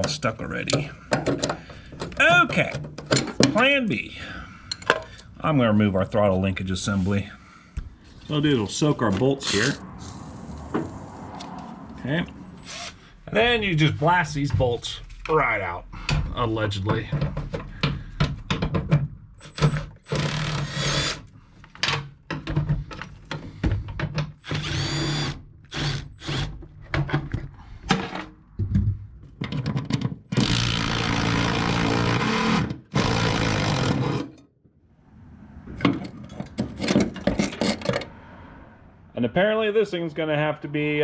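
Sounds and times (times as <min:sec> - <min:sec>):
tools and metal parts clanking: 0:00.0 - 0:03.6, 0:35.9 - 0:38.1
power tool running in bursts: 0:24.5 - 0:26.5, 0:30.4 - 0:34.1.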